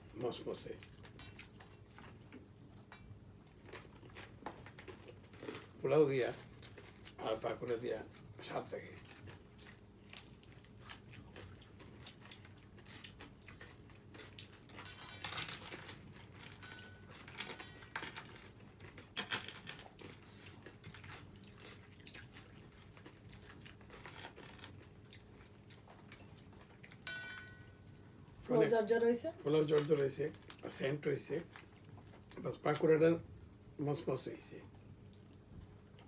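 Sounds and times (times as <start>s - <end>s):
chewing with crisp crunches: 0.0s - 28.5s, 29.6s - 33.8s, 34.7s - 36.0s.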